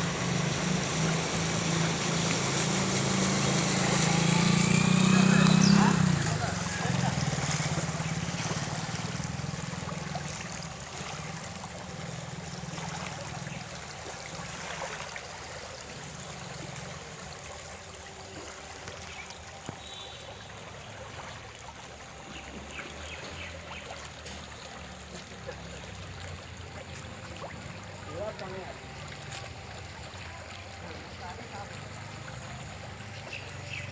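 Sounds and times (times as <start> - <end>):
floodwater rushing: 0.0 - 33.9.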